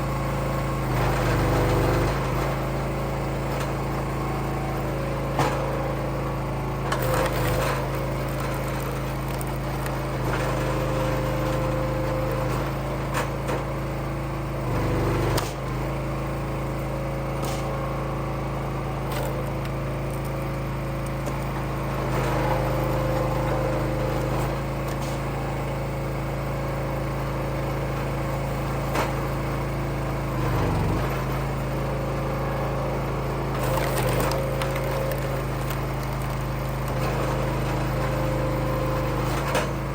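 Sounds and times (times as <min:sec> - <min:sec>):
log splitter engine running: 0:00.0 - 0:39.9
firewood cracking as split: 0:33.6 - 0:37.4.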